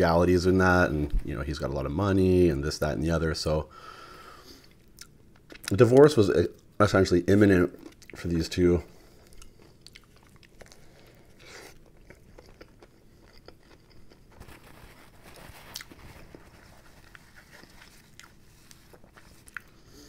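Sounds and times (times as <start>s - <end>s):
mouth clicks and crunches: 9.2s - 19.8s
person biting and chewing: 9.2s - 19.8s.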